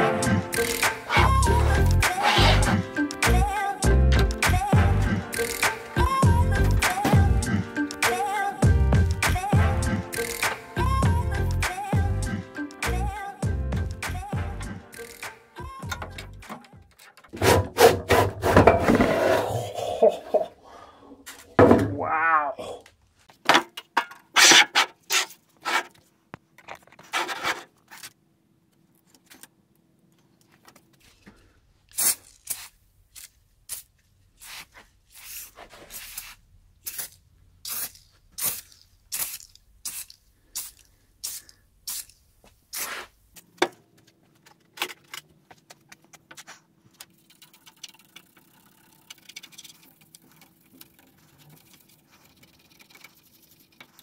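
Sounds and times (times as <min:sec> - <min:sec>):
fine scratching: 0:34.4 - 0:36.4
scrubbing strokes on metal faceplate: 0:49.2 - 0:54.0.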